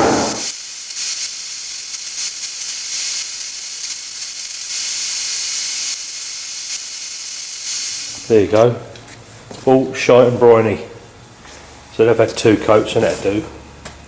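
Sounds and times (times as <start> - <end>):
air compressor: 0.0 - 8.4
paint spray gun hissing: 0.0 - 8.5.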